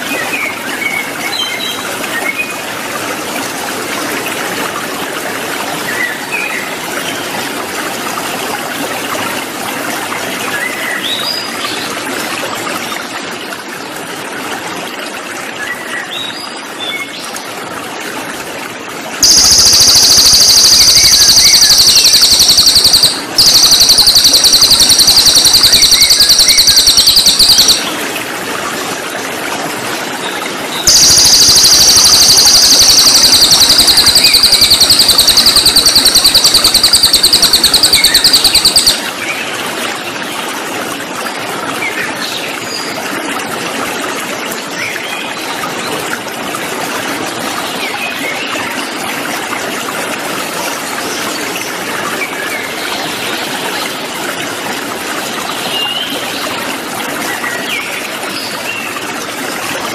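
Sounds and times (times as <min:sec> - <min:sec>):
flowing water: 0:00.0 - 0:59.9
bird chirping and buzzing trill: 0:19.2 - 0:28.0, 0:30.9 - 0:39.1.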